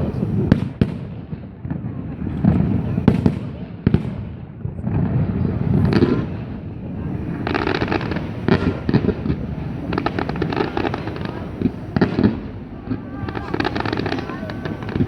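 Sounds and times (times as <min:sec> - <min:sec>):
fireworks shells booming: 0:00.0 - 0:15.0
rapid crackling pops: 0:04.8 - 0:15.0.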